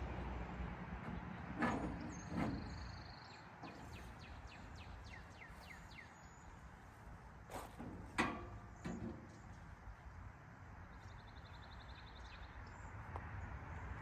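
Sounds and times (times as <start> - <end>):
metal car parts clanking: 1.0 - 4.6, 7.5 - 9.5.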